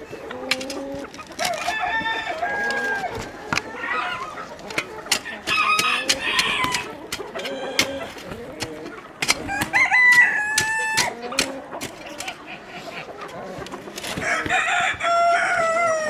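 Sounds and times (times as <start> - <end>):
chickens clucking: 0.0 - 16.0
sharp clicks: 0.2 - 3.7, 4.6 - 12.4
rooster crowing: 1.4 - 4.4, 5.2 - 8.2, 9.5 - 11.2, 14.2 - 16.0.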